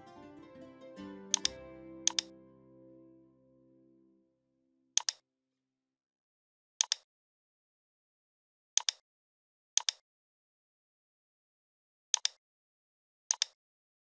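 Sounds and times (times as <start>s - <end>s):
computer mouse clicks: 5.0s - 5.2s, 6.8s - 7.1s, 8.8s - 9.0s, 9.8s - 10.0s, 12.1s - 12.4s, 13.3s - 13.6s.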